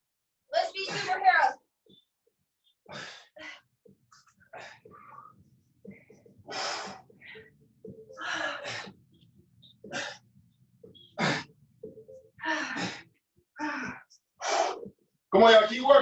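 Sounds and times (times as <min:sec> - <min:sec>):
person breathing hard: 0:02.9 - 0:03.7, 0:06.4 - 0:07.5, 0:09.9 - 0:10.2, 0:12.4 - 0:14.9.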